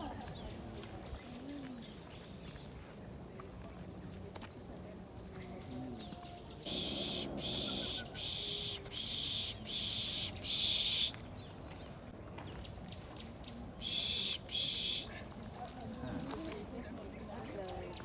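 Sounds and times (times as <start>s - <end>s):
shrill hissing insect buzz: 6.7s - 11.1s, 13.8s - 15.1s.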